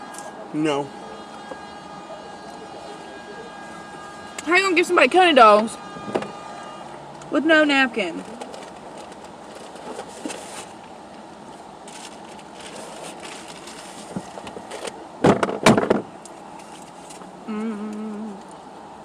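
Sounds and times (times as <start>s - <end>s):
outdoor traffic hum: 0.0s - 19.0s
close crackle of rustling: 8.2s - 15.0s, 16.2s - 17.4s
person humming: 17.5s - 18.5s.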